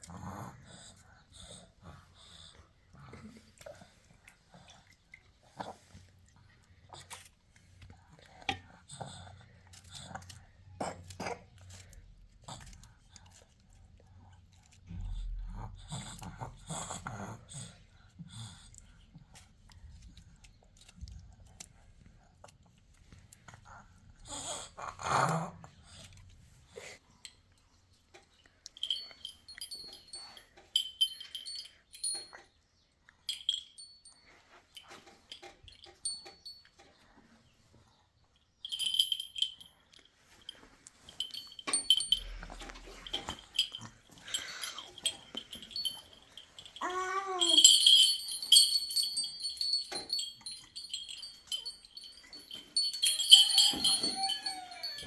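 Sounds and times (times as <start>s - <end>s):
light metallic clinking: 28.6s - 32.6s, 33.2s - 37.1s, 38.5s - 55.0s
small metal bells jingling: 28.7s - 32.5s, 33.3s - 36.9s, 38.6s - 55.0s.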